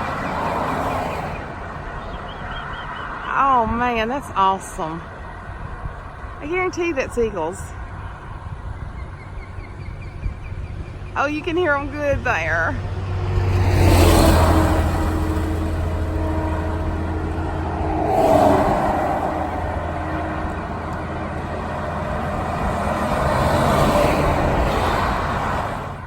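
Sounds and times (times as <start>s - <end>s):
low engine hum: 0.0s - 26.0s
vehicles passing: 0.0s - 26.0s.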